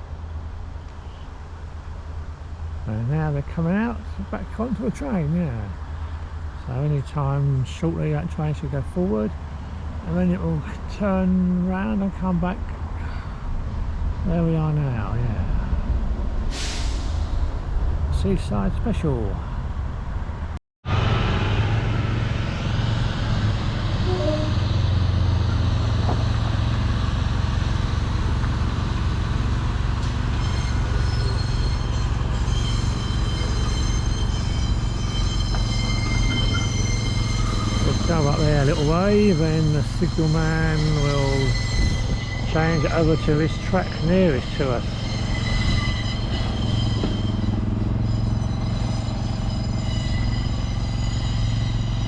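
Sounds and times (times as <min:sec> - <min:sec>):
diesel train engine drone: 0:00.0 - 0:52.0
thin high whine: 0:30.4 - 0:52.0.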